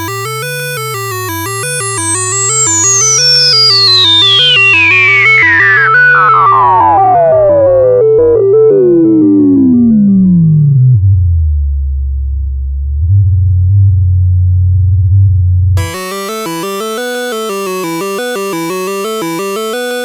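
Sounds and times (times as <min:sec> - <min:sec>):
synthesizer sequencer pattern: 0:00.0 - 0:11.0, 0:15.8 - 0:20.0
synth bass line: 0:05.8 - 0:20.0
tone sweeping downward: 0:15.8 - 0:20.0.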